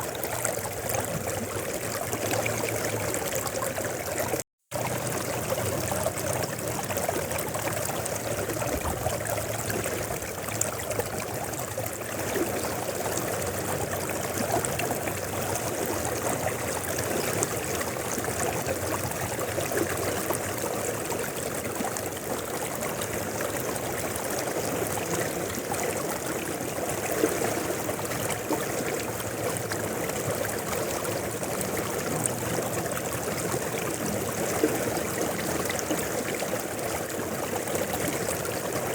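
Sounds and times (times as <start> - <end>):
river water rushing: 24.0 - 38.9.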